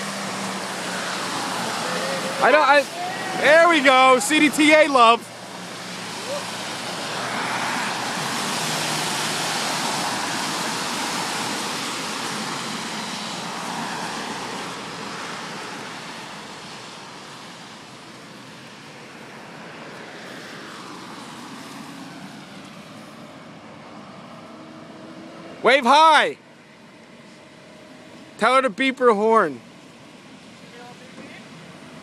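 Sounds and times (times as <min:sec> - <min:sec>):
vehicle passing close: 0:00.0 - 0:16.9
traffic hum: 0:00.0 - 0:32.0.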